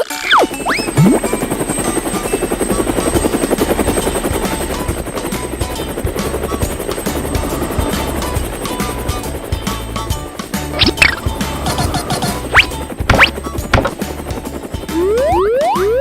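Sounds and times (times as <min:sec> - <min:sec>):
background music: 0:00.0 - 0:16.0
cartoon helicopter rotor chopping: 0:00.0 - 0:16.0
low hum: 0:00.4 - 0:08.6.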